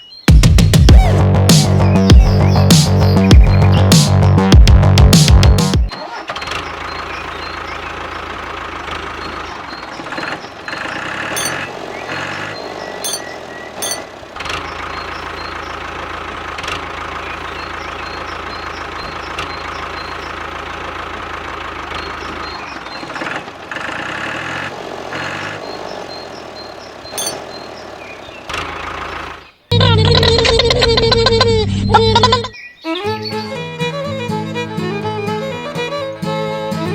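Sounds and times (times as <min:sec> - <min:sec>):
small engine running: 0:06.3 - 0:32.3.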